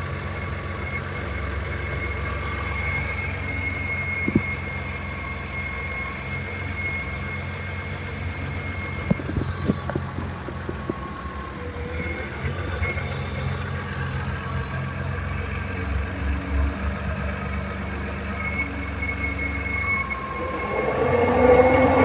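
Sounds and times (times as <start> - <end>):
high-pitched squeal: 17.0 - 22.0
car engine running: 17.9 - 22.0.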